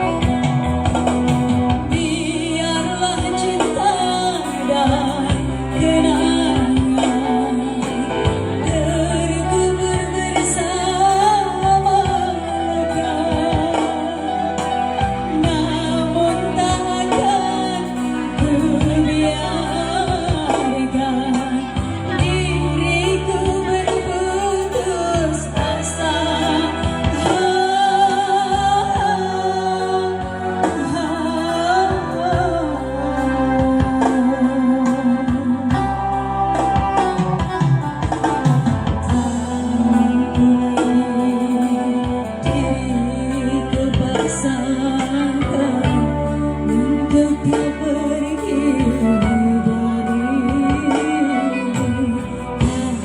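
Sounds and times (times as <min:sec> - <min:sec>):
steady drum beat: 0:00.0 - 0:08.9, 0:20.0 - 0:42.9
electronic keyboard: 0:00.0 - 0:53.0
person singing: 0:00.0 - 0:53.0.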